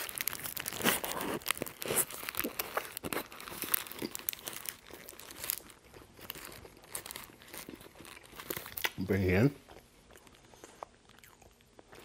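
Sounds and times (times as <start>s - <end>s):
paper wrapper crinkling: 0.0s - 9.3s
biting and chewing food: 0.0s - 12.0s.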